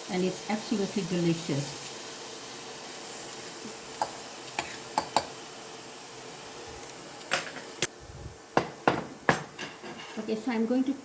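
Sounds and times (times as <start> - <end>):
steak sizzling in a frying pan: 0.0 - 11.0
utensil knocking against pan: 5.0 - 5.4, 8.6 - 9.7.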